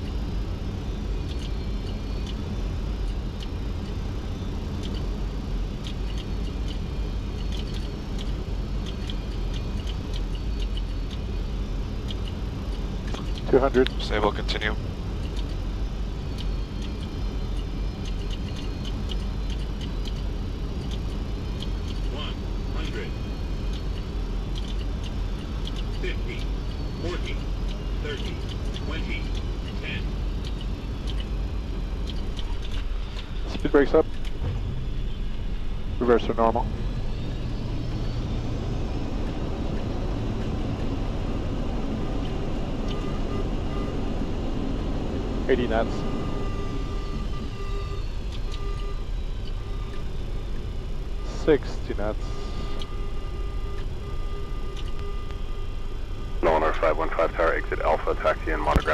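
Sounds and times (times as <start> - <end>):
airflow and engine rumble: 0.0 - 58.9
faint ticks: 23.7 - 29.8.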